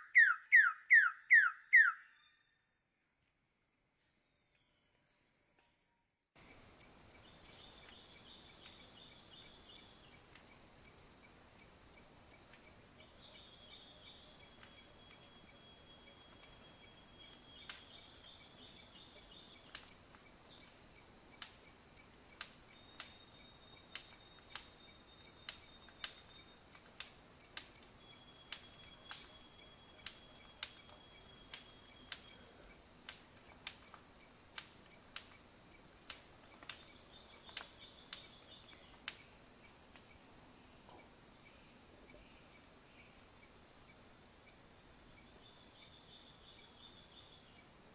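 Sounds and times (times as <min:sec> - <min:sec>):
high insect trill: 0:00.0 - 0:47.9
sharp clicks: 0:34.6 - 0:35.4.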